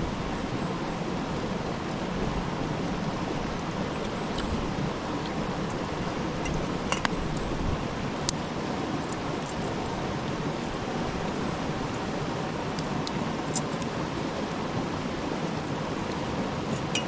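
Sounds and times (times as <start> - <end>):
campfire hissing: 0.0 - 17.0
fire crackles: 1.2 - 14.4.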